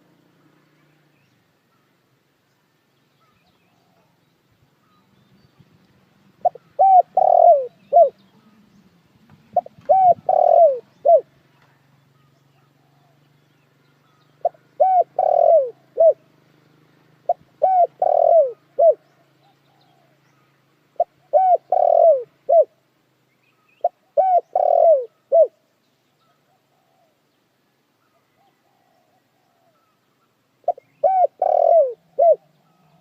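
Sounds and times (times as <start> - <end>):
dove cooing: 6.4 - 8.6, 9.5 - 11.4, 14.4 - 16.3, 17.2 - 20.2, 21.0 - 22.8, 23.8 - 25.6, 26.2 - 27.2, 28.1 - 30.0, 30.6 - 33.0.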